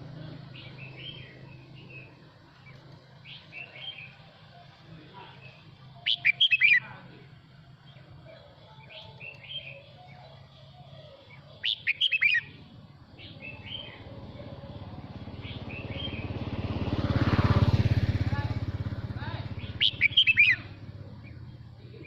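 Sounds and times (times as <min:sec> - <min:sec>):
motor engine: 0:00.0 - 0:11.4, 0:12.4 - 0:22.0
bird singing bright notes: 0:00.4 - 0:07.0, 0:07.8 - 0:16.4, 0:19.5 - 0:22.0
soft bird chirps: 0:07.8 - 0:16.4, 0:19.5 - 0:22.0.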